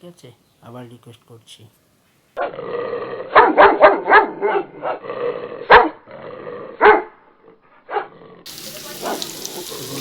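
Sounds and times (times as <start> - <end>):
dog barking: 3.3 - 5.0, 5.6 - 6.0, 6.8 - 7.2, 7.8 - 8.2, 9.0 - 10.0.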